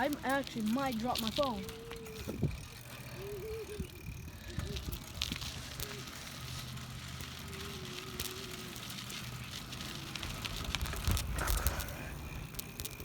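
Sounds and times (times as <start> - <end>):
bicycle bump: 0.0 - 13.0
bicycle tyres rumbling: 0.0 - 13.0
wind on microphone: 2.2 - 2.7.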